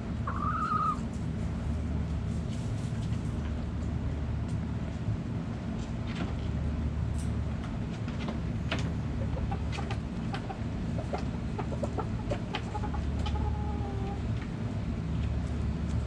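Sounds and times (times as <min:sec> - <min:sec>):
hens clucking: 0:00.2 - 0:01.2, 0:09.1 - 0:14.5.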